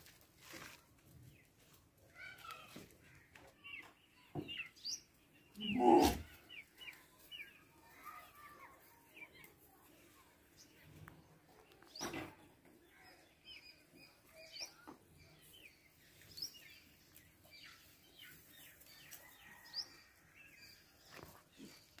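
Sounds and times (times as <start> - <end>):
small birds chirping: 1.0 - 22.0.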